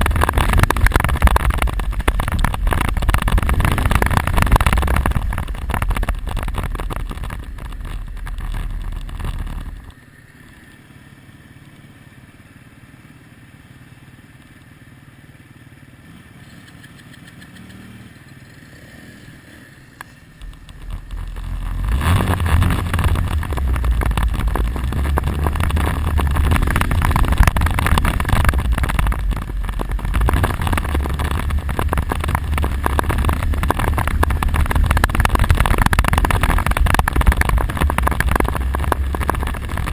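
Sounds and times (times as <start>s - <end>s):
wind noise: 0.0s - 10.0s, 20.4s - 39.9s
quad engine running: 0.0s - 39.9s.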